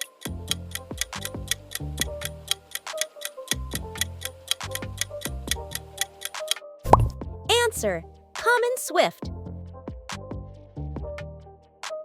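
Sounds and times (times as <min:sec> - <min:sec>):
clock ticking effect: 0:00.0 - 0:09.1
quiz countdown music: 0:00.0 - 0:09.4.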